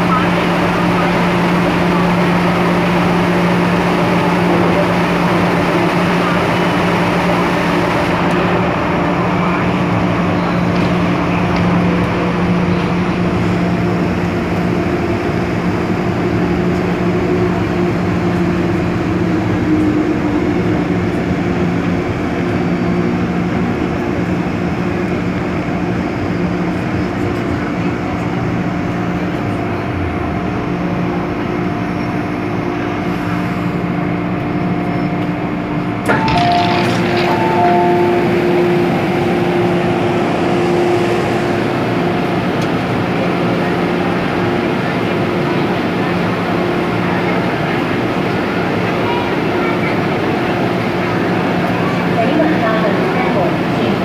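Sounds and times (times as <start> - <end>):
train rolling rumble: 0.0 - 54.0
high tone: 36.1 - 41.9.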